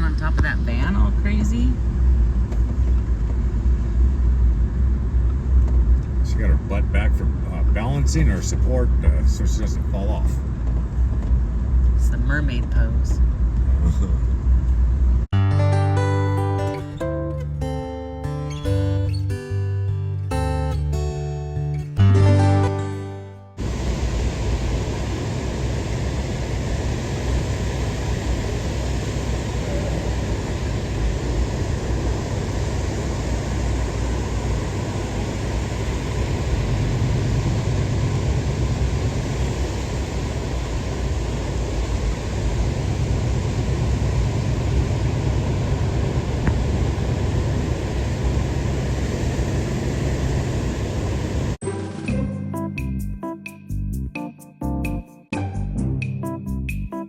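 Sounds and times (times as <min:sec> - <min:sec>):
engine and tyres rumble: 0:00.0 - 0:15.3, 0:23.6 - 0:51.6
wind and road noise hiss: 0:23.6 - 0:51.6.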